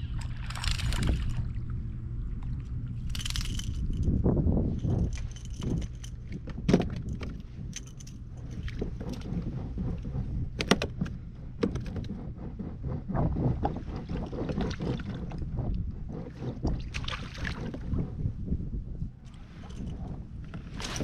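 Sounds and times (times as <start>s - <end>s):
water slapping against hull: 0.0s - 1.8s, 5.0s - 18.6s
wind rumbling on microphone: 0.0s - 21.0s.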